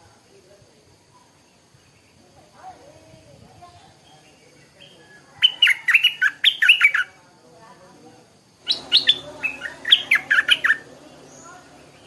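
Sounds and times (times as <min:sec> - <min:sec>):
bird singing: 0:01.0 - 0:07.2, 0:08.5 - 0:12.0.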